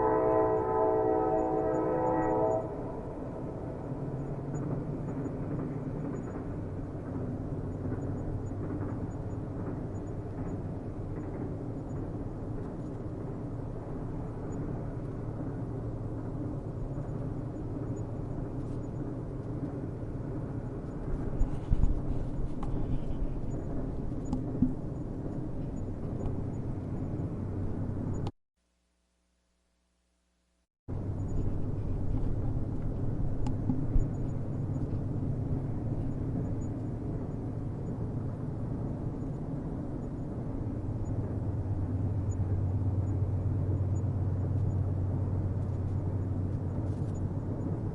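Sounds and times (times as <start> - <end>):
distant train rumble: 0.0 - 28.3, 30.9 - 47.9.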